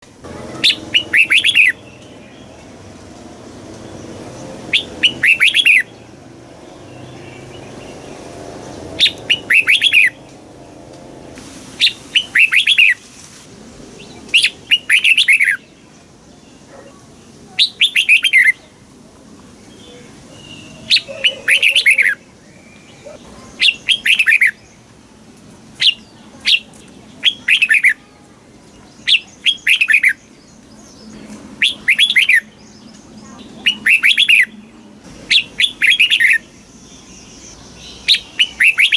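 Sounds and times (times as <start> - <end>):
bird singing whistled phrases: 0.6 - 1.8, 4.7 - 5.9, 9.0 - 10.2, 11.8 - 13.0, 14.3 - 15.6, 17.6 - 18.6, 25.8 - 28.0, 29.0 - 30.3, 31.6 - 32.8, 33.6 - 34.6, 35.3 - 36.5, 37.5 - 38.9.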